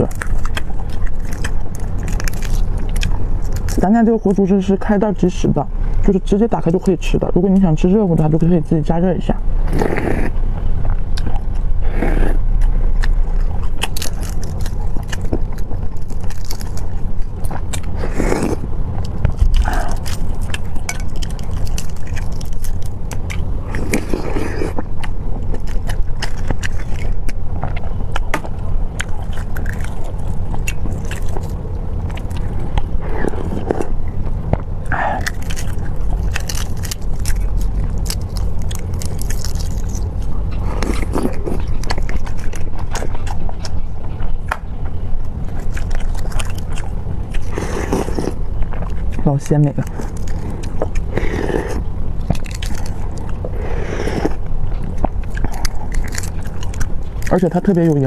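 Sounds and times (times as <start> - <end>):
person chewing food: 0.0 - 4.3, 9.6 - 58.0
low hum: 0.0 - 58.0.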